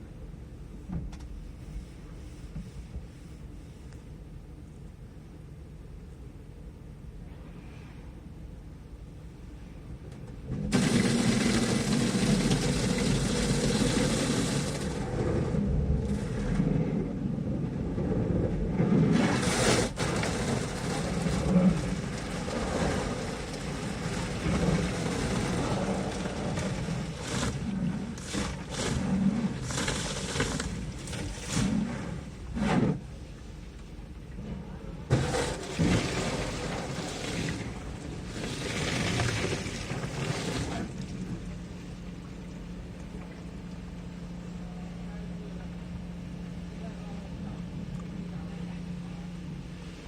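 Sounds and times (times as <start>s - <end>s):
water spraying onto car: 10.5s - 33.2s, 35.1s - 41.7s.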